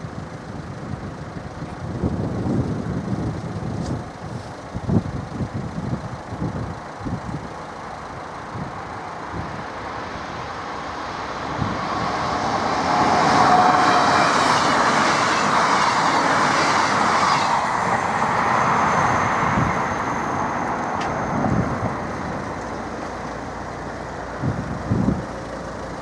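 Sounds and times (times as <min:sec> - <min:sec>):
passenger train passing: 0:00.0 - 0:26.0.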